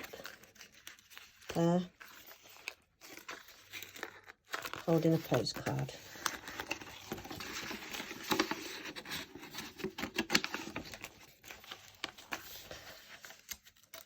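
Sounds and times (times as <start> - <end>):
paper rustling: 0.0 - 14.0.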